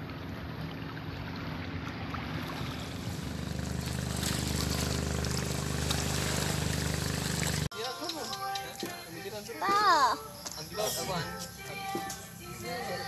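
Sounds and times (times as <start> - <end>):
boat engine droning: 0.0 - 7.7
wind: 0.0 - 13.0.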